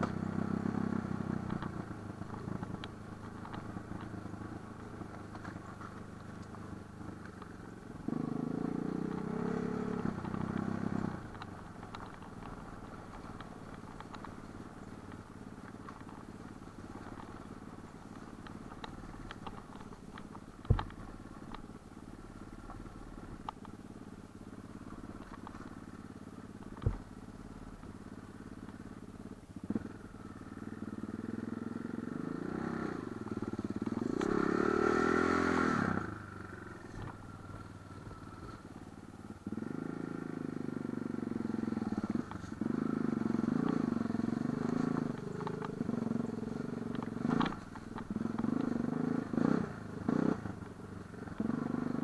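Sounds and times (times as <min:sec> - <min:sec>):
motorcycle engine revving: 0:00.0 - 0:52.0
sharp knocks and clatters: 0:18.4 - 0:21.6.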